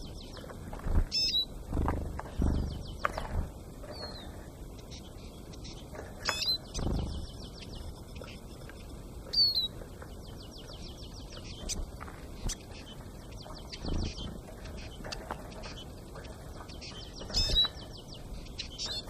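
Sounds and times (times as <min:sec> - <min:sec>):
rapid high ticking bird notes: 0:00.0 - 0:19.0
dull low thumps: 0:01.7 - 0:03.6.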